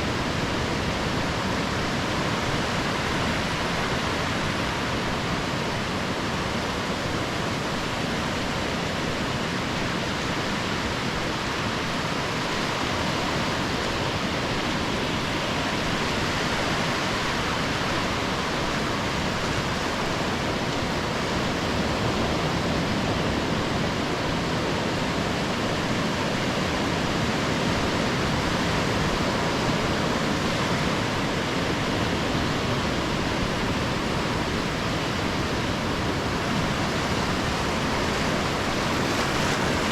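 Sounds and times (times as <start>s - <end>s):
surf breaking on sandy beach: 12.8s - 39.9s.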